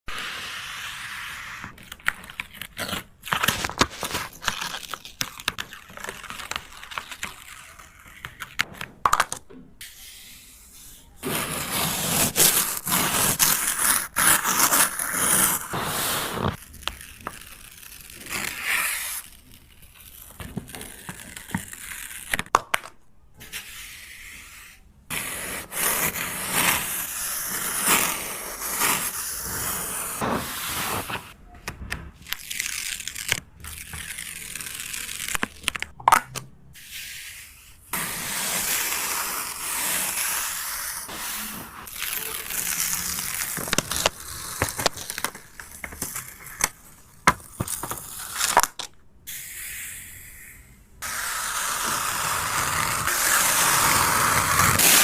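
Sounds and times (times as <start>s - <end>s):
drawing tool scraping on paper: 9.8s - 16.6s, 36.8s - 46.1s.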